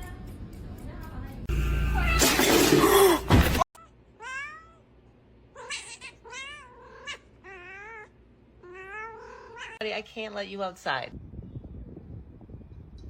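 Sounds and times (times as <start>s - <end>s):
cat meowing: 3.8s - 4.8s, 5.6s - 9.8s.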